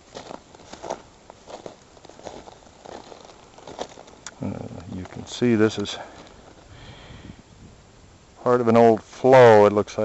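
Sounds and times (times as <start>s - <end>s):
footsteps crunching on loose rock: 0.0s - 4.2s, 4.9s - 6.7s.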